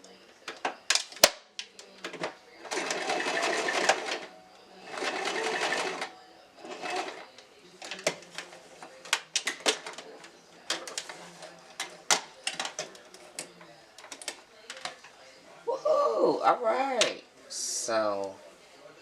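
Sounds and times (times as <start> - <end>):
sewing machine stitching: 2.7 - 4.2, 4.9 - 7.2.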